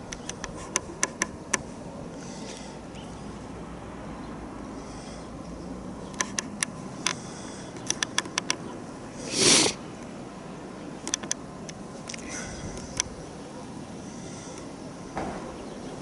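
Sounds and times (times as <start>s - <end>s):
wind noise on microphone: 12.4s - 13.2s.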